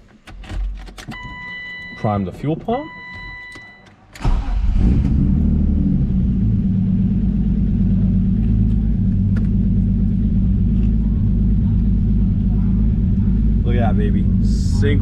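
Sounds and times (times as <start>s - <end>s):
car engine starting and idling: 4.1s - 15.0s.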